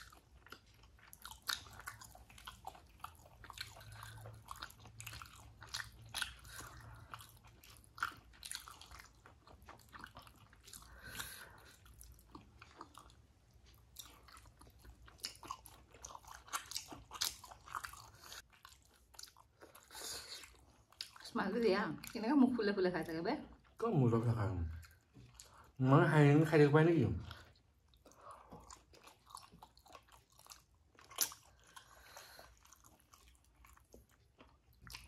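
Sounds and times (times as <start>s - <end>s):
person chewing food: 0.0s - 21.3s, 24.7s - 25.8s, 27.2s - 35.0s.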